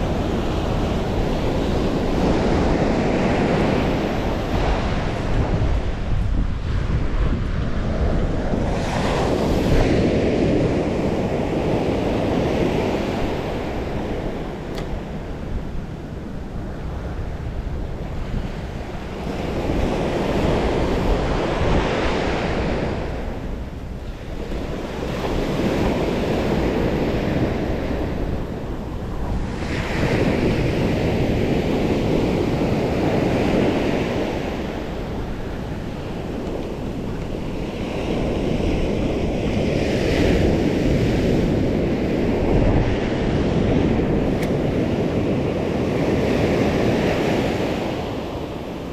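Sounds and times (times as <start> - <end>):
sea waves breaking: 0.0 - 48.9
wind buffeting microphone: 0.0 - 48.9.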